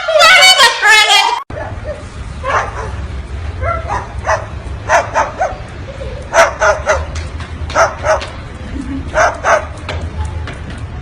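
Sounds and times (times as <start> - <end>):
dog yapping: 3.6 - 5.6, 6.3 - 7.2, 7.8 - 8.3, 9.2 - 9.7.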